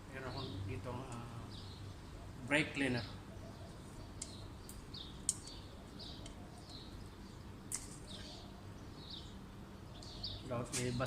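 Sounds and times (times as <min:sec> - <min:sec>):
small bird chirping: 0:03.1 - 0:11.0.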